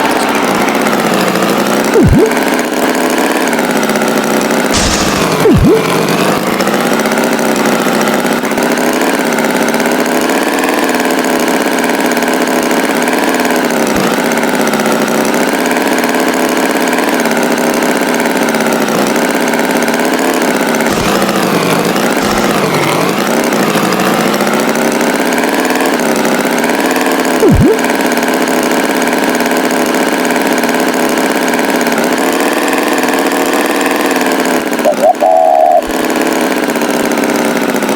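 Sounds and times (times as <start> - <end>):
tractor engine running: 0.0 - 37.9
brief sharp sounds: 4.8 - 6.4, 20.9 - 23.2.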